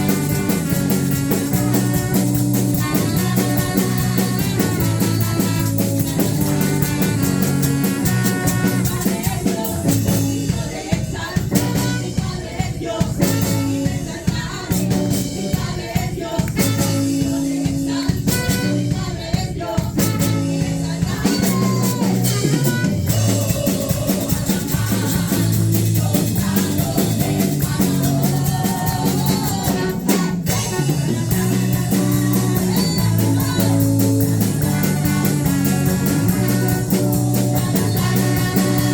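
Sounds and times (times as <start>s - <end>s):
drum kit beat: 0.0s - 38.9s
person singing: 21.2s - 38.9s
guitar playing: 31.4s - 38.9s.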